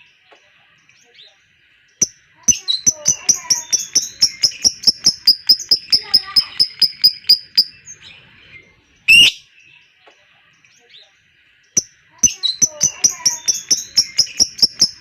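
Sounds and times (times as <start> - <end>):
lovebird chattering: 2.0 - 8.2, 9.1 - 9.4, 11.8 - 15.0.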